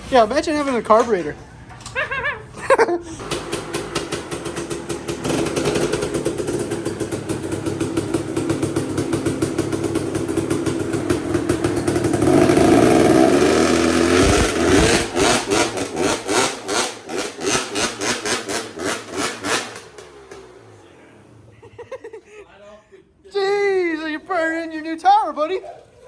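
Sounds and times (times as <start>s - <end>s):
motorcycle engine revving: 3.2s - 21.9s
tyre spinning on concrete: 11.4s - 19.9s.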